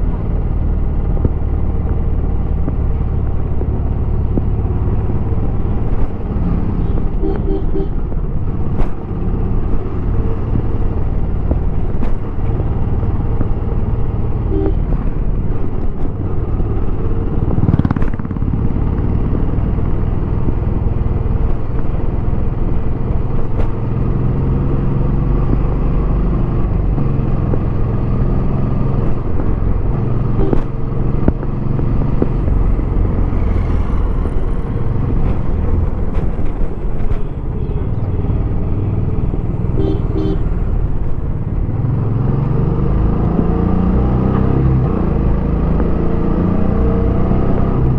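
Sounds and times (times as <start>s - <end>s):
motorcycle engine running: 11.0s - 22.5s.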